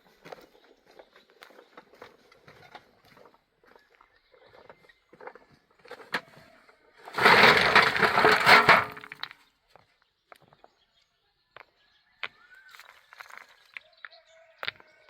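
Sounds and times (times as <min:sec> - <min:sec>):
loud crunching crash: 0:07.1 - 0:09.2.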